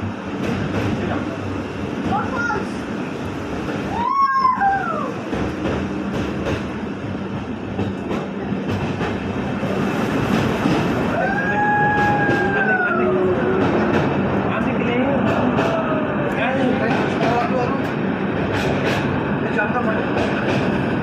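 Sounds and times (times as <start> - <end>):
train coach rumbling and rattling: 0.0 - 21.0
voice-like rising and falling cries: 3.9 - 5.2, 11.1 - 13.6.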